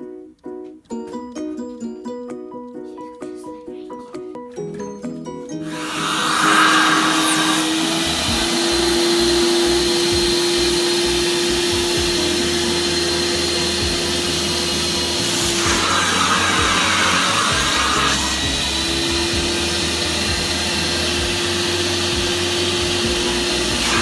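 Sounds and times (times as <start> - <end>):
vacuum cleaner motor whine: 5.7 - 24.0
vacuum suction hiss: 5.7 - 24.0.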